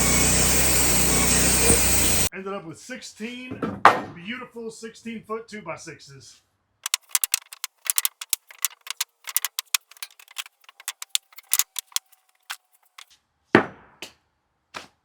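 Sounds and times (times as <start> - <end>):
rapid sharp clicks and ticks: 6.8 - 13.1.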